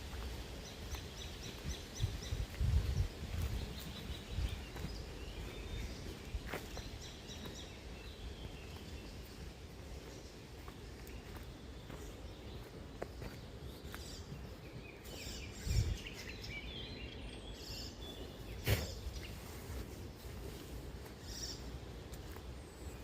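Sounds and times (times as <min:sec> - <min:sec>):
bird calls: 0:00.1 - 0:20.4, 0:21.0 - 0:23.0.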